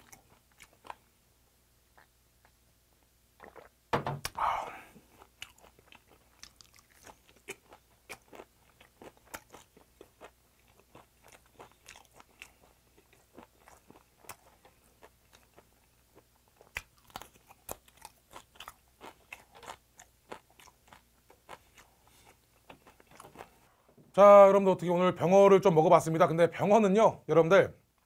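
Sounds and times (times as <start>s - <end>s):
open-mouthed chewing and lip smacking: 0.0s - 1.1s, 1.9s - 2.6s, 3.4s - 23.6s.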